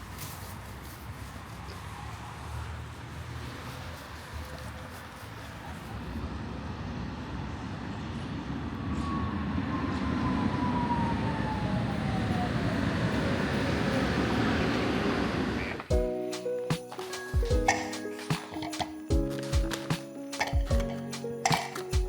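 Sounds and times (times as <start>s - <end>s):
moving vehicle running noise: 1.6s - 15.9s.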